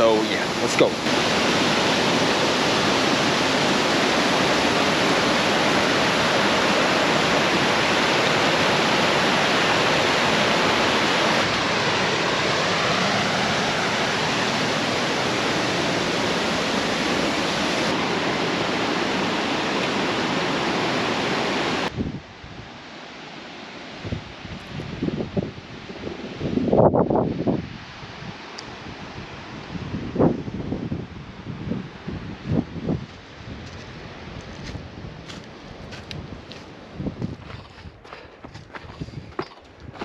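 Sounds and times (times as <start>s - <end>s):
waterfall rushing: 0.0s - 21.9s.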